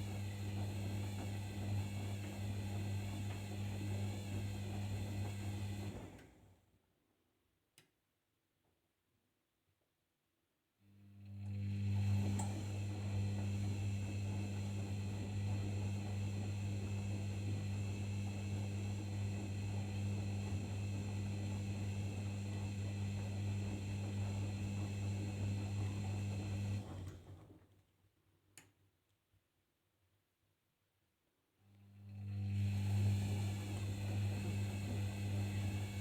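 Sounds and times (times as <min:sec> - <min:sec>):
washing machine humming: 0:00.0 - 0:06.4, 0:11.2 - 0:27.4, 0:32.0 - 0:36.0
click: 0:07.8 - 0:08.0, 0:28.5 - 0:29.2.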